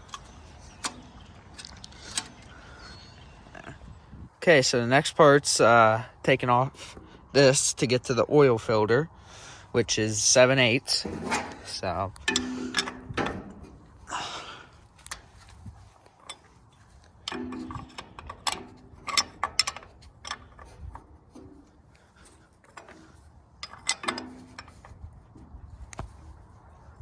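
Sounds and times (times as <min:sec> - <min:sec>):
ringing metal clanks: 0:00.0 - 0:03.9, 0:10.9 - 0:14.0, 0:16.1 - 0:25.1
metal wrench clicking: 0:12.2 - 0:13.4, 0:17.3 - 0:21.1.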